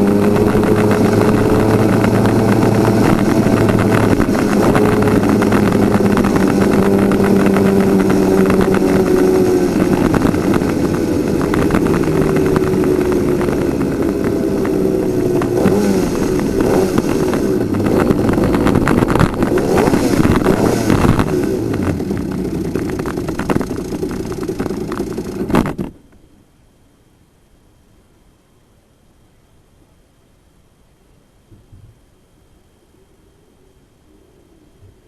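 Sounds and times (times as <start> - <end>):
two-stroke kart engine running: 0.0 - 26.0.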